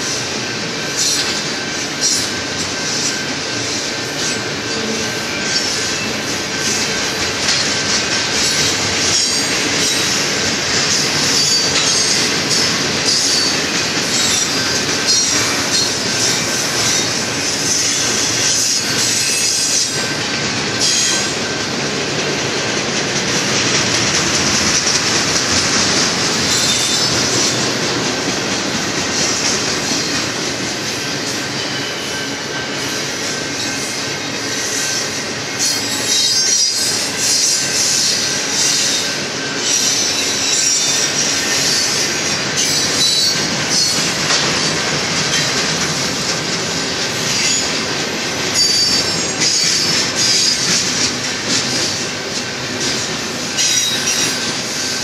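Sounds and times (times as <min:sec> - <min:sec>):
freight train wheels on rail: 0:00.0 - 0:55.0
clicking from train trucks: 0:04.4 - 0:31.0, 0:39.6 - 0:54.7.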